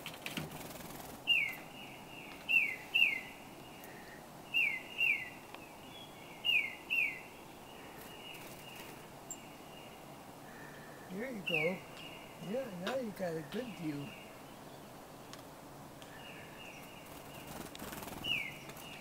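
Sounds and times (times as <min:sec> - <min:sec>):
songbird whistling: 0:02.5 - 0:03.3, 0:04.5 - 0:07.3, 0:11.4 - 0:12.1.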